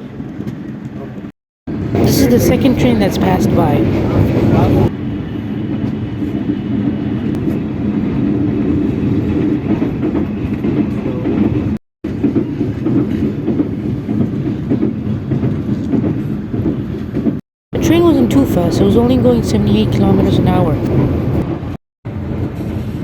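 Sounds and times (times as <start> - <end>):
train rumbling on tracks: 2.0 - 23.0.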